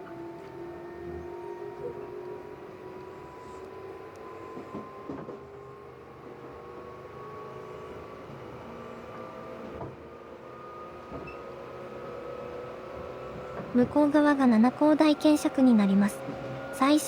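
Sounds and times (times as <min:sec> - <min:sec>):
electric train motor whine: 0:00.0 - 0:17.0.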